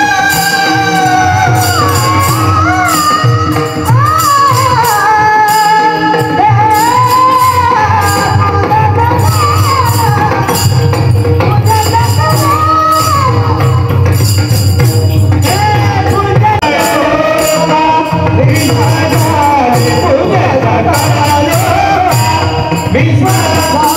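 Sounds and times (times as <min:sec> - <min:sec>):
person singing: 0:00.0 - 0:14.2
held accompaniment tones: 0:00.0 - 0:23.9
metallic jingling percussion: 0:00.0 - 0:23.9.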